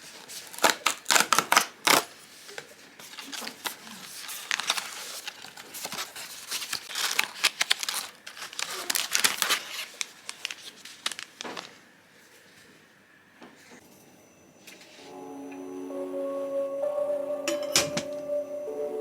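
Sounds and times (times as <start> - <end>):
packaging crinkling: 0.2 - 2.2, 3.0 - 11.8.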